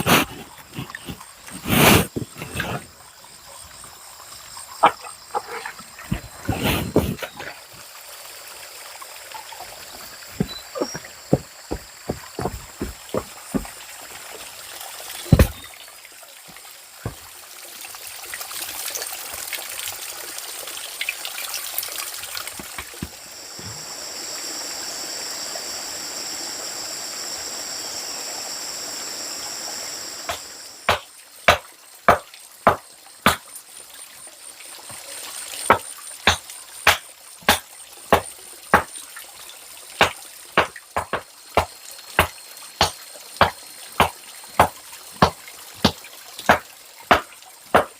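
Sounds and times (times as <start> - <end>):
water trickling and pouring: 0.0 - 24.7, 29.4 - 47.9.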